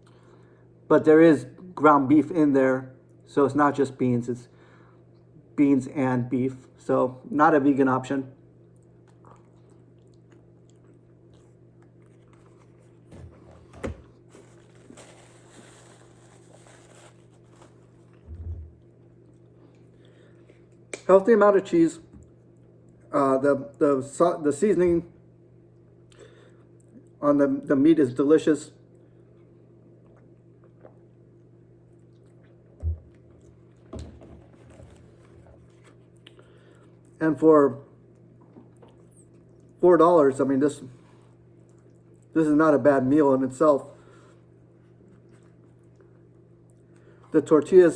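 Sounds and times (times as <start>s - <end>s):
low steady hum: 0.0s - 47.9s
faint chewing: 8.6s - 13.2s, 28.9s - 33.9s, 34.9s - 37.2s, 38.0s - 39.8s, 40.9s - 42.4s
person chewing food: 8.6s - 13.2s, 41.2s - 42.3s.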